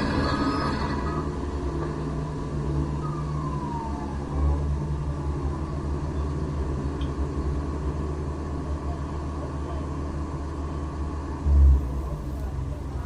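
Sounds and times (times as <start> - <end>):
vehicle low rumble: 0.0 - 13.0
brief falling whine: 11.4 - 12.7.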